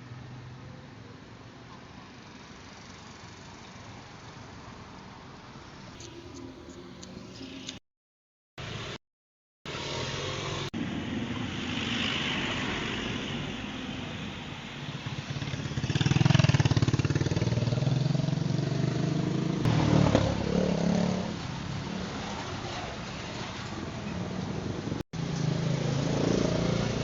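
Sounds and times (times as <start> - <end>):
vehicle engine with road noise: 0.0 - 7.8, 9.7 - 27.0
vehicle passing: 15.0 - 27.0.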